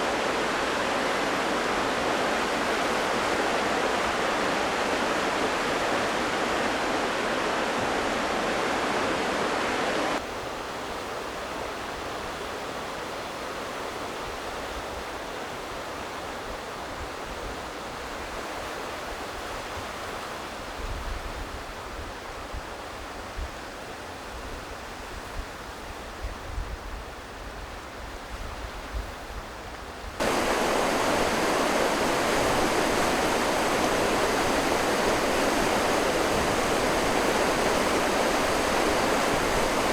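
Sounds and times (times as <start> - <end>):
sea waves and surf: 0.0 - 10.2, 30.2 - 39.9
wind buffeting microphone: 30.2 - 39.9.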